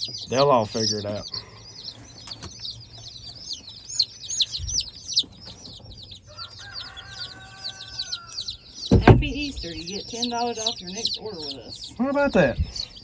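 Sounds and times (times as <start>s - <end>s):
chicks peeping: 0.0s - 13.0s
dull thump: 8.9s - 9.9s.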